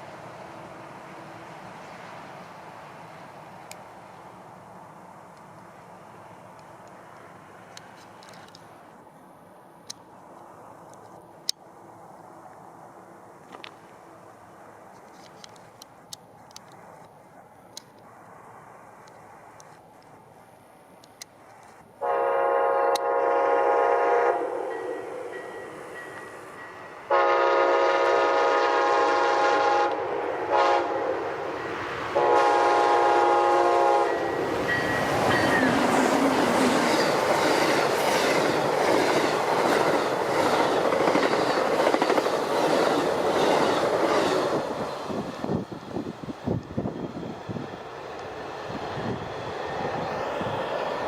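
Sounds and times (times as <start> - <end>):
train passing with loud rush: 0.0 - 51.0
locomotive multi-tone horn: 22.0 - 25.3, 27.1 - 31.2, 32.2 - 34.4.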